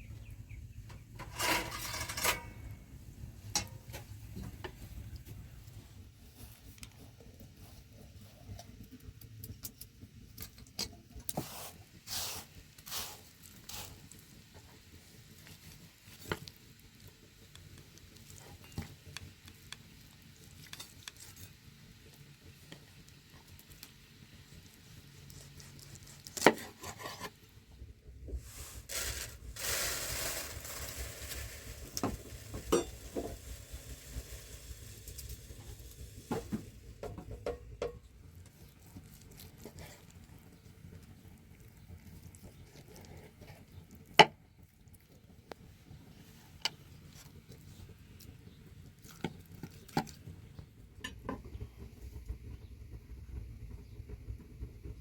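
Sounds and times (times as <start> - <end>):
rustling hiss: 28.3 - 37.4
objects clinking and knocking: 32.0 - 33.4.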